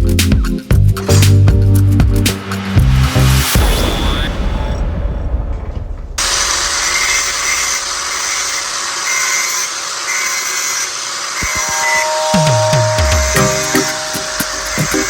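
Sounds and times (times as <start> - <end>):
music: 0.0 - 3.8, 11.6 - 15.0
angle grinder running: 6.3 - 11.4.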